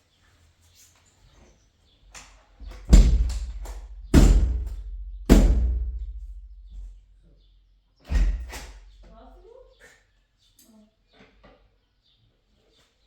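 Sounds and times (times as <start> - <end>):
heavy blows on wooden door: 2.6 - 7.1, 8.1 - 9.0.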